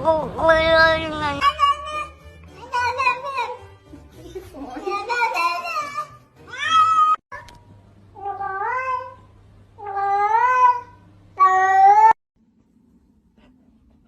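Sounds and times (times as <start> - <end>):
cat meowing: 9.8 - 12.2.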